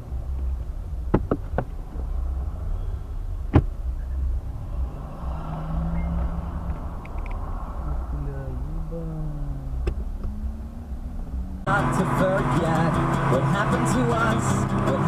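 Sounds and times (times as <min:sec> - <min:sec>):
car engine and road rumble: 0:00.0 - 0:15.0
sharp knocks: 0:01.1 - 0:01.8.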